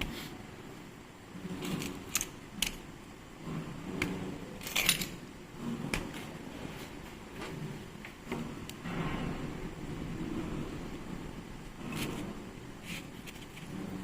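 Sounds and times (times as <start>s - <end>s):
metal parts clinking: 4.6s - 5.2s.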